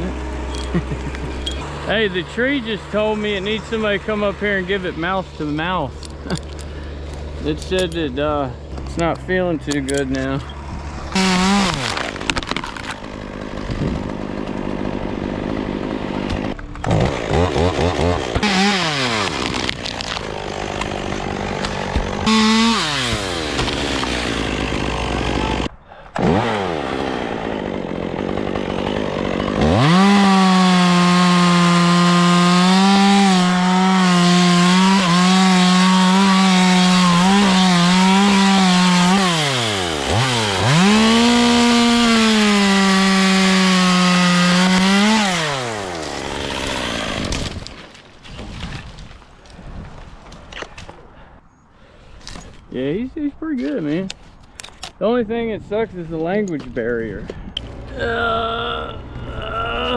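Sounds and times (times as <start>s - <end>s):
chainsaw revving and cutting wood: 0.0s - 48.8s.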